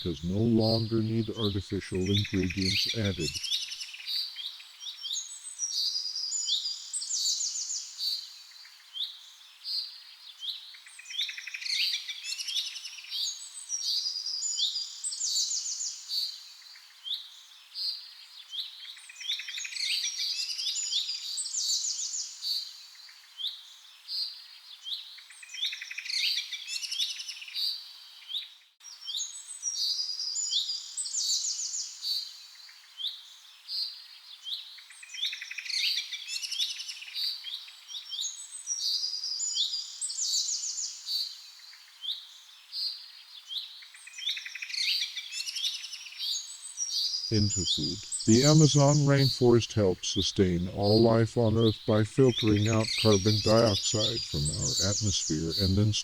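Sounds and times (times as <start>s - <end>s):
many birds chirping and trilling: 0.0s - 3.8s, 44.2s - 49.6s, 50.4s - 56.0s.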